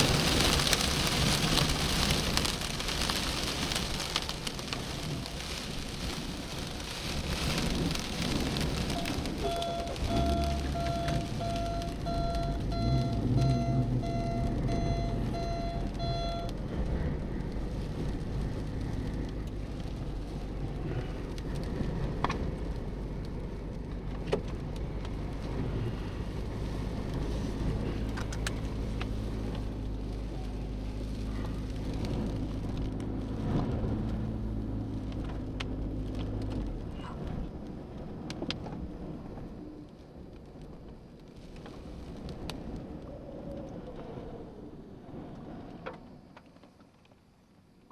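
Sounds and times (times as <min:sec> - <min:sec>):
vehicle engine humming: 0:00.0 - 0:41.1
rain and storm: 0:00.0 - 0:47.9
electronic beeping chime: 0:09.0 - 0:16.5.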